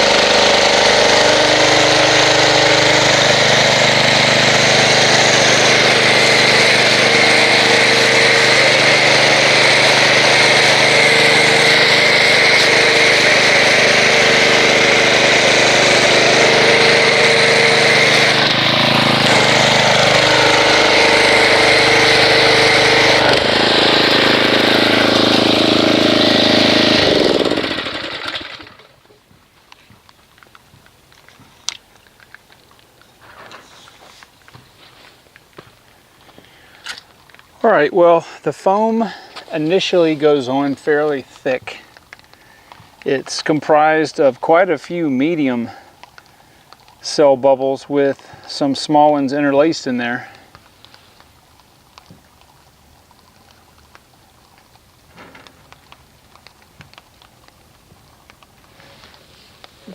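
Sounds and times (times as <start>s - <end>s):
foam spray hissing: 0.0s - 29.0s
pressure washer motor hum: 0.0s - 29.3s.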